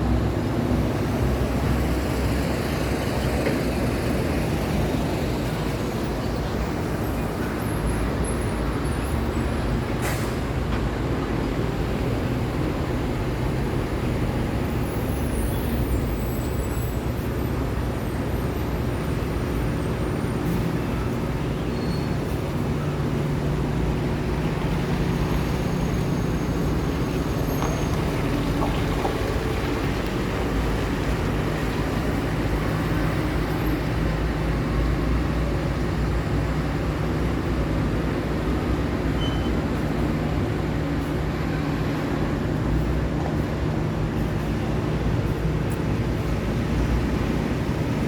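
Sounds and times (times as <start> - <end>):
car engines and tyre noise: 0.0 - 48.0
heavy trucks passing: 0.0 - 48.0.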